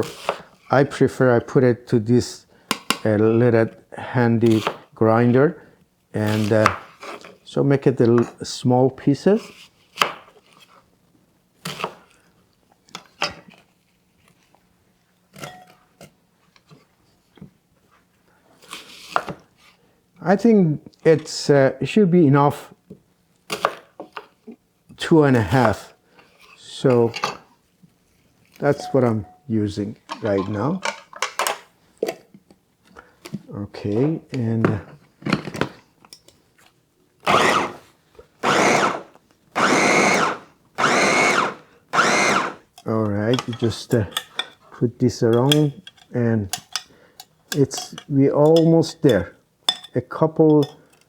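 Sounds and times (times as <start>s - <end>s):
food chopper motor whining: 37.2s - 42.8s.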